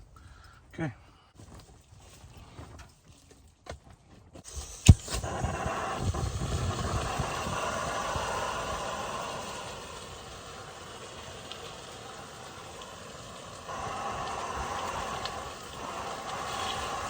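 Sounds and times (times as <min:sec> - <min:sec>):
gas burner hissing: 0:04.4 - 0:17.0
gas burner ignition click: 0:04.5 - 0:12.9, 0:13.6 - 0:17.0.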